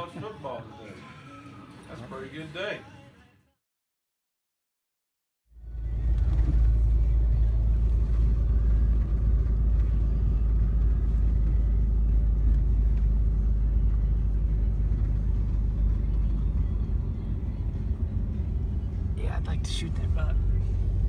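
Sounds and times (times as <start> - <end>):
truck rumble from inside cab: 5.6 - 21.0.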